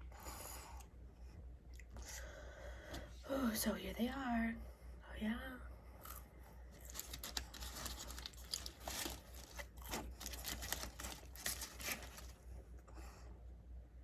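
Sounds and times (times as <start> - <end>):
steady low hum: 0.0 - 14.0
food packaging crinkling: 6.7 - 12.4.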